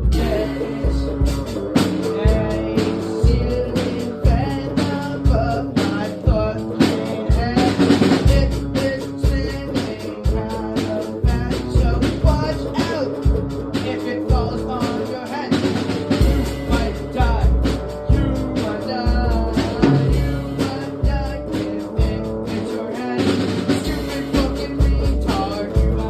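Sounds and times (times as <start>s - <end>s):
person singing: 0.0s - 26.0s
rock band playing: 0.0s - 26.0s
kick drum and snare beat: 3.3s - 22.6s.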